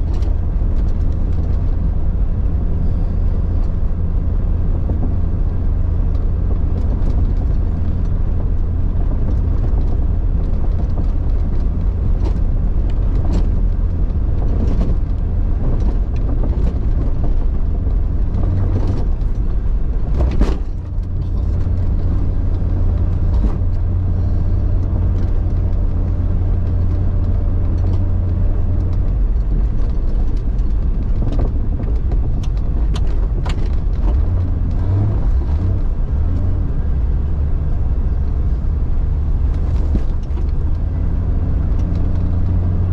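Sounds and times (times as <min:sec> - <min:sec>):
car engine droning: 0:00.0 - 0:42.9
knocks and bumps: 0:10.6 - 0:36.5.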